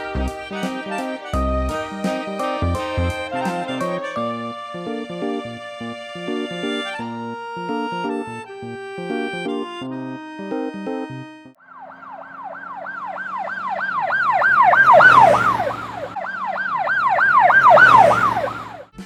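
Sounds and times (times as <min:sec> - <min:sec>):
fire truck siren yelping: 0:11.6 - 0:19.0
low engine rumble: 0:11.7 - 0:19.0.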